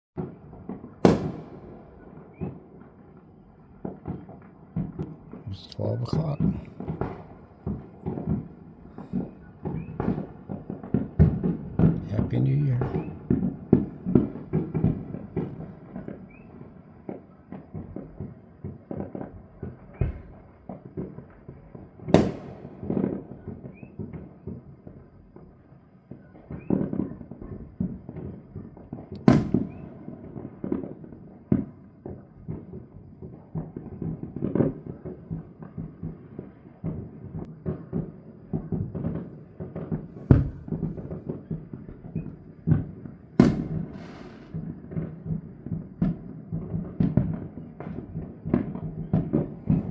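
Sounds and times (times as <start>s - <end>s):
fireworks popping and banging: 0.2s - 24.7s, 26.4s - 49.9s
firework whistles: 1.0s - 2.8s, 8.9s - 11.0s, 15.4s - 16.9s, 23.6s - 24.6s, 29.2s - 30.1s, 37.7s - 42.7s, 43.4s - 44.8s.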